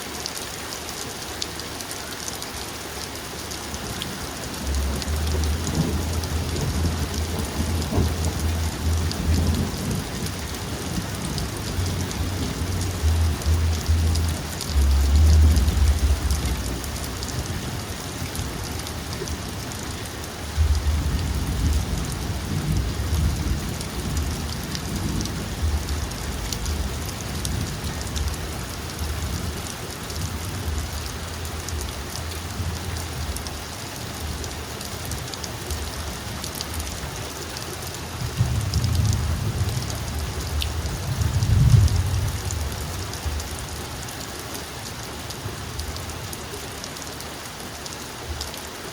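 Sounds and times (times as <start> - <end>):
heavy rain falling: 0.0 - 48.9
deep thunder rumbles: 4.5 - 19.4, 20.4 - 33.4, 38.2 - 43.4.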